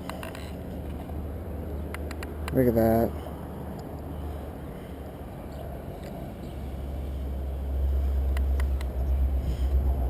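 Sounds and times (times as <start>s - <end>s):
wind rumble on microphone: 5.7s - 10.0s.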